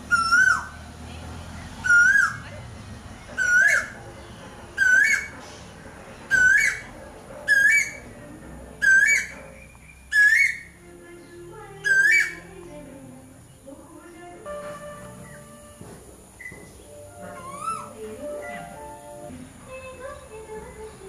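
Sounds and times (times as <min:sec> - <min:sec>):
bird whistled call: 0:00.0 - 0:00.8, 0:01.8 - 0:02.4, 0:03.4 - 0:04.0, 0:04.8 - 0:05.3, 0:06.3 - 0:06.9, 0:07.5 - 0:08.0, 0:08.8 - 0:10.7, 0:11.8 - 0:12.4, 0:15.1 - 0:15.8, 0:17.2 - 0:18.8.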